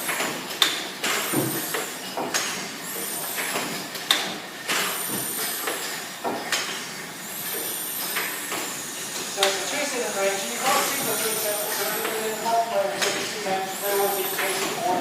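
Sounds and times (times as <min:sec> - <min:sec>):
steam hissing: 0:07.2 - 0:15.0.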